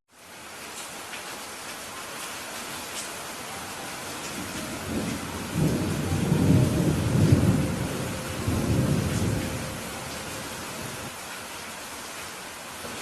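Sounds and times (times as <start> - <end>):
heavy rain hissing: 0.1 - 13.0
thunder rumbling: 3.9 - 11.1.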